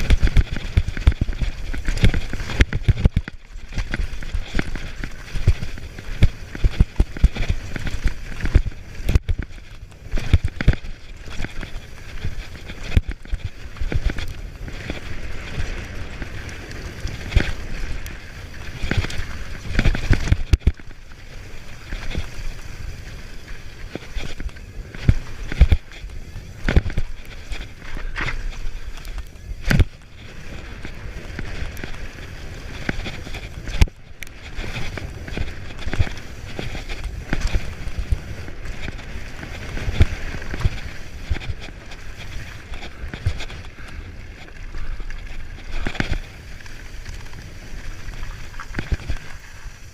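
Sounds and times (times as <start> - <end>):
bike tyres rolling on dirt: 0.0 - 49.9
wind on microphone: 0.0 - 49.9.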